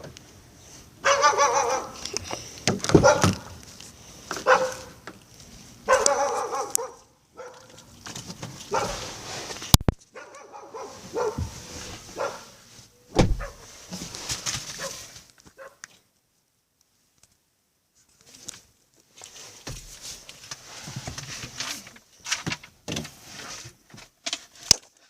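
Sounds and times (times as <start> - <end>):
dog barking: 1.0 - 2.0, 2.9 - 3.5, 4.4 - 5.0, 5.9 - 7.8, 8.7 - 9.1, 10.1 - 11.5, 12.1 - 12.6, 13.4 - 13.7, 14.8 - 15.8.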